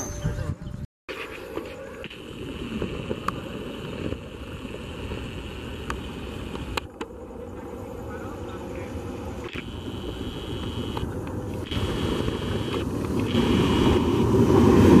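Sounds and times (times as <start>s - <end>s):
train rushing rumble: 11.1s - 15.0s.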